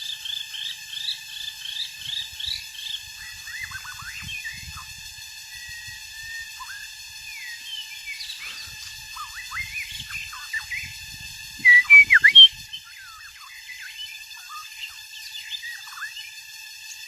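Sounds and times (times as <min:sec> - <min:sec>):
bird singing whistled notes: 0:11.6 - 0:12.5.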